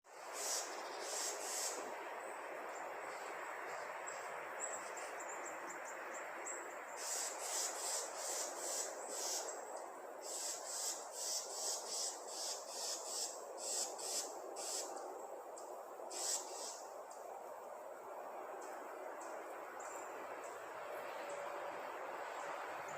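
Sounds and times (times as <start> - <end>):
birds chirping: 0.1 - 17.4
background hiss: 0.1 - 22.9.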